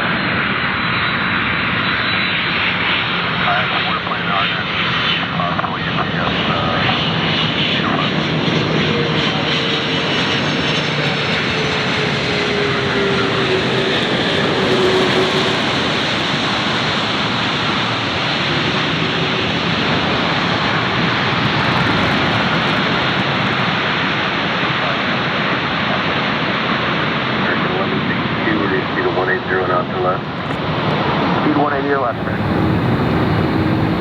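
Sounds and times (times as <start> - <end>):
jet engines running: 0.0 - 34.0
whine sinking in pitch: 11.1 - 18.2, 19.4 - 24.1, 29.9 - 34.0.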